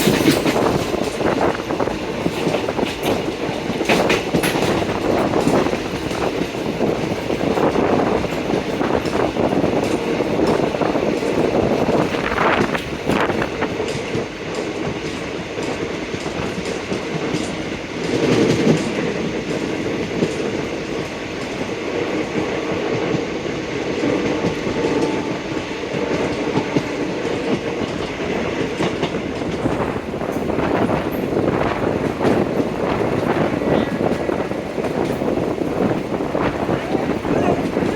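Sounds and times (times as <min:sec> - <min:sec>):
train coaches rumbling and rattling: 0:00.0 - 0:37.9
train wheels clicking over rail joints: 0:00.0 - 0:37.9.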